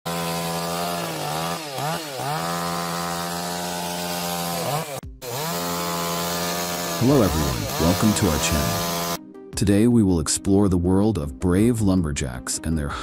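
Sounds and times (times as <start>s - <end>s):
chainsaw running at high revs: 0.1s - 9.2s.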